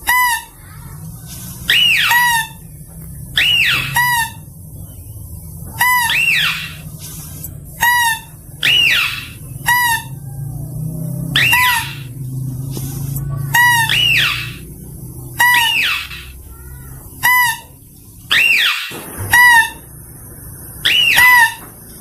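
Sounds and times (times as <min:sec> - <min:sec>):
shrill animal cries: 0:00.0 - 0:00.9, 0:01.7 - 0:02.7, 0:03.4 - 0:04.5, 0:05.7 - 0:06.9, 0:07.8 - 0:12.3, 0:13.5 - 0:20.0, 0:20.8 - 0:21.8
low hum: 0:00.0 - 0:22.0.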